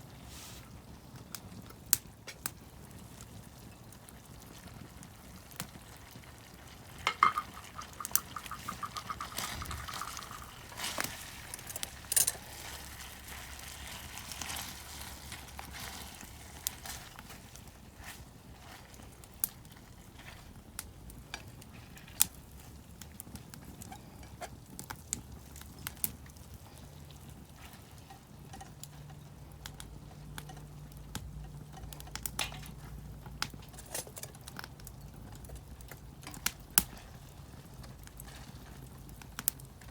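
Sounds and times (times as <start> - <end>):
soft background hiss: 3.0 - 39.9
utensils clinking in frying pan: 6.9 - 17.3, 27.8 - 32.9.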